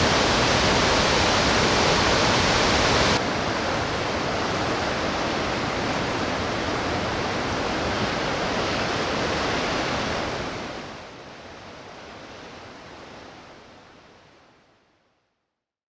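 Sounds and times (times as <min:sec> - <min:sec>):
stream water rushing: 0:00.0 - 0:10.8.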